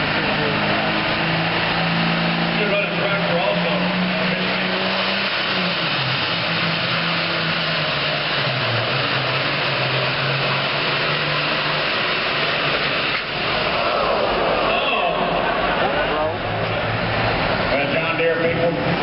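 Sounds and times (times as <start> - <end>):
tractor diesel engine running hard: 0.0 - 1.8.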